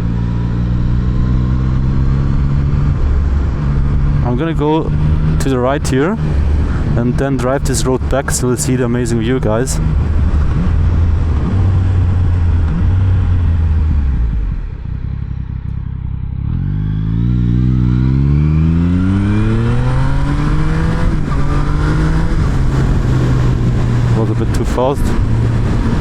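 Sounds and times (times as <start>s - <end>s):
motorcycle engine accelerating: 0.0s - 26.0s
wind rush: 2.7s - 14.8s, 18.6s - 26.0s.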